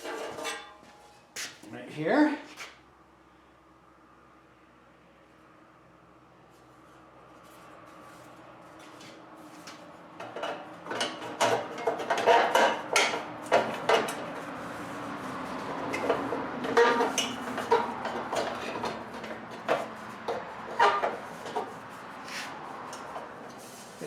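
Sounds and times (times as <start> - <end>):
sheet metal clattering and scraping: 0.0 - 0.9, 10.2 - 14.6, 15.4 - 22.1.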